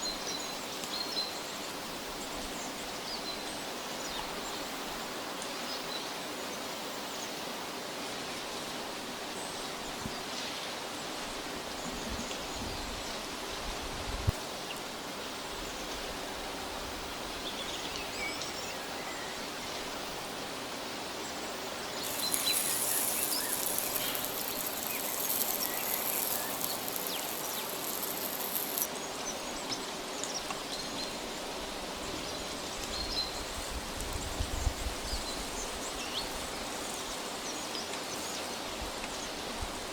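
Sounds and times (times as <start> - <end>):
forest background hush: 21.8 - 28.9
high hiss: 22.0 - 28.9.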